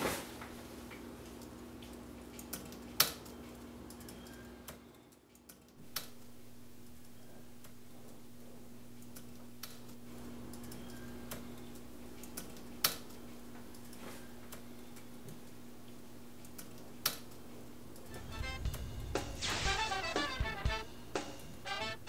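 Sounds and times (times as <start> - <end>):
steady low hum: 5.8 - 22.0.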